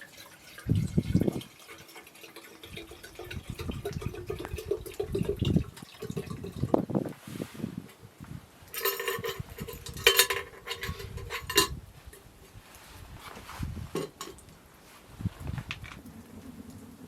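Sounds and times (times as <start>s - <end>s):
metal cookware clinking and ringing: 8.7s - 11.8s.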